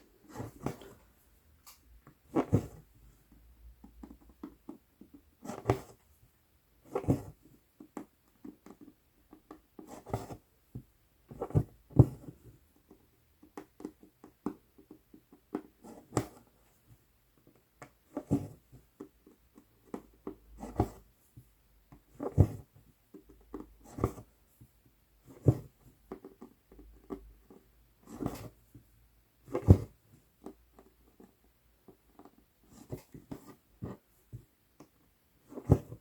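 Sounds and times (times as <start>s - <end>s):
needle and thread through cloth: 18.0s - 24.6s, 25.2s - 34.5s.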